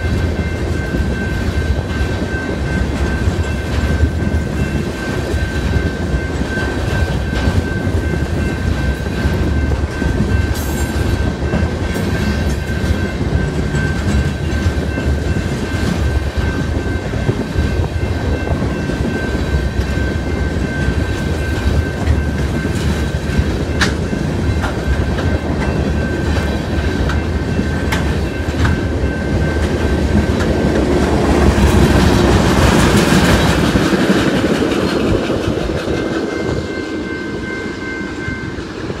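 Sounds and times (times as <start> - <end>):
crossing signal bell: 0.0 - 34.2, 35.0 - 39.0
freight train wheels rumbling: 0.0 - 39.0
wheels clacking on rail: 0.0 - 39.0.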